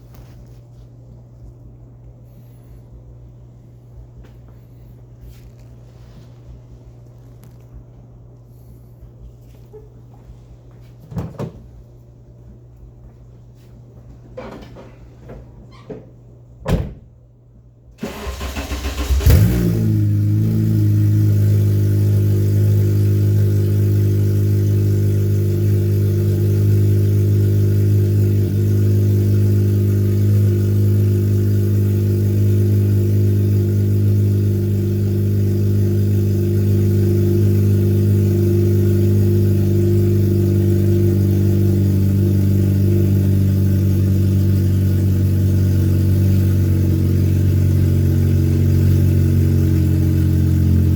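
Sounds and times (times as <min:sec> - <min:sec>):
car engine revving and idling: 0:18.0 - 0:50.9.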